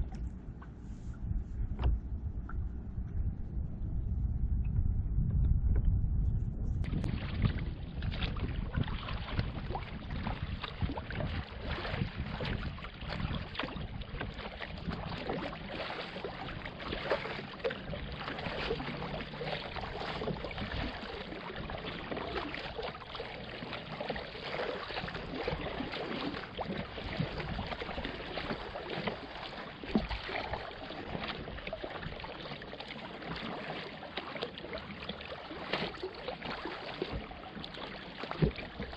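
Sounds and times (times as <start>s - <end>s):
low rumble: 0.0s - 23.7s
water splashing from paddling: 6.8s - 38.9s.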